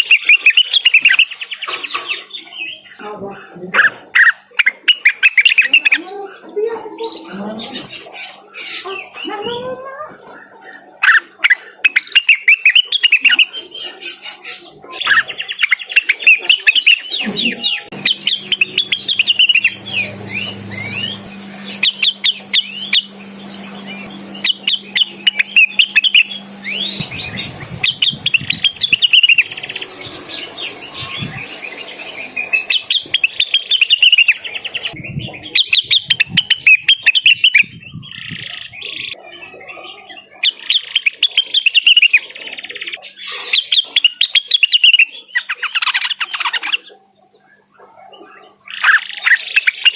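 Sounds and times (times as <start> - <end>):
bird singing sharp chirps: 15.0 - 37.6.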